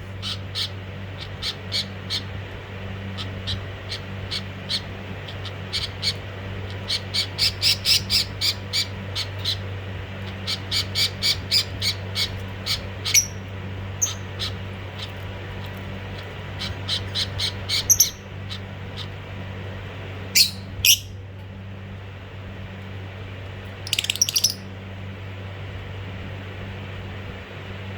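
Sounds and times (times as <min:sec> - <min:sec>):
steady low hum: 0:00.0 - 0:27.9
budgerigars squawking: 0:10.5 - 0:13.4, 0:16.6 - 0:18.2, 0:23.9 - 0:24.6.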